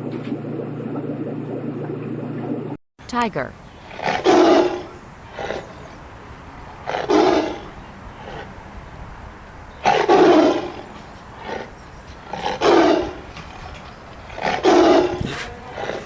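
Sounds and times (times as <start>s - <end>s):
tiger roaring: 3.9s - 5.8s, 6.8s - 8.5s, 9.8s - 13.3s, 14.3s - 16.0s.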